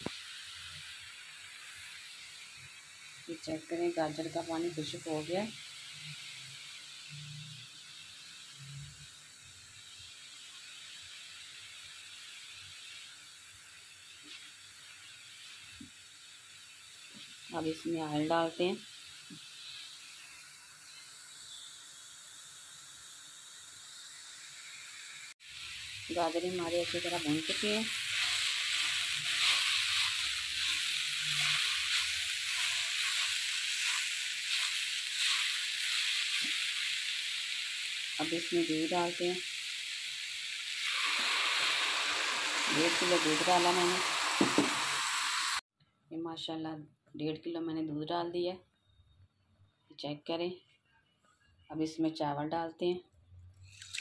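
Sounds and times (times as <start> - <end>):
carrots sizzling in a pan: 0.0 - 45.6
spatula stirring: 26.4 - 36.6.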